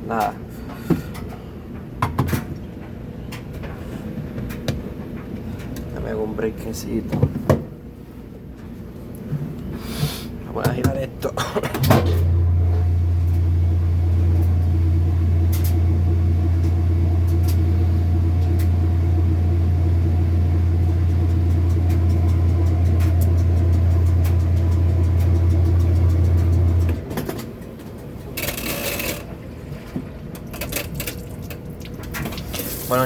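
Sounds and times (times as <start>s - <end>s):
washing machine motor humming: 10.4s - 33.0s.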